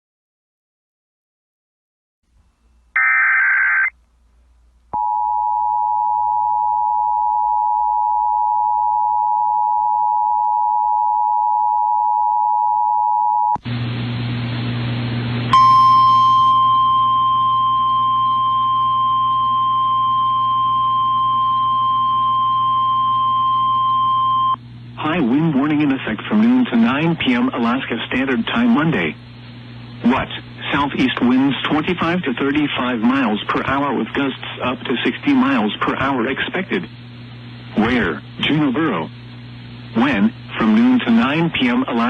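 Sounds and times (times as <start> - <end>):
data warble: 3.0 - 3.9
hiss with hum: 13.6 - 42.0
two-note attention tone: 15.5 - 20.7.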